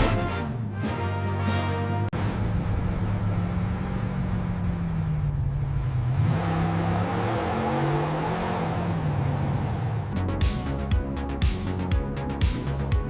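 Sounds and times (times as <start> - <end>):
car engine revving: 2.2 - 10.8.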